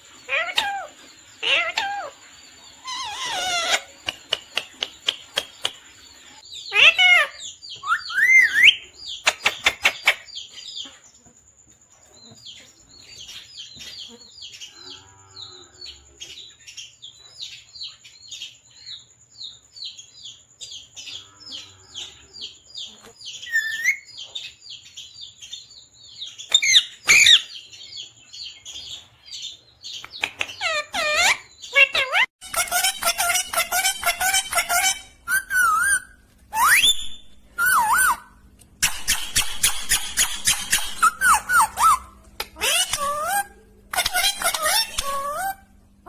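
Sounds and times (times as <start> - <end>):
harsh parrot calls: 0.3 - 2.2, 2.8 - 4.4, 6.6 - 10.3, 26.5 - 27.5, 30.5 - 45.7
parrot chirping: 0.3 - 2.2, 2.8 - 5.9, 6.6 - 10.4, 23.4 - 24.2, 26.5 - 27.7, 30.0 - 45.8.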